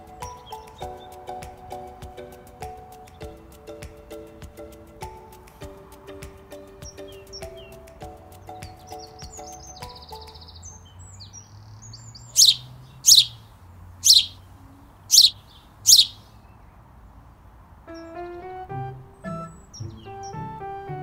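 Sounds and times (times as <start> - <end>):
other birds chirping: 0.0 - 5.2, 6.1 - 16.8
piano background music: 0.0 - 10.8, 17.9 - 21.0
bird calling: 8.5 - 14.5, 15.1 - 16.4.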